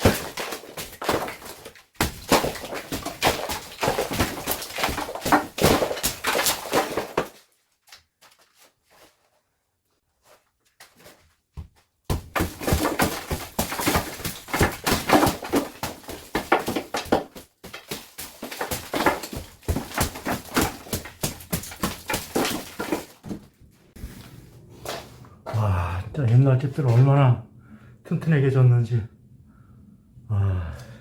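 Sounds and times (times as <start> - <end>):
demolition knocks and clatter: 0.0 - 7.4, 12.1 - 23.6.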